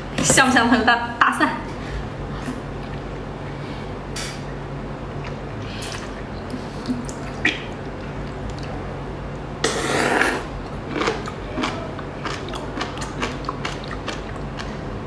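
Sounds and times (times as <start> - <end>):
food crunching: 9.9 - 14.8.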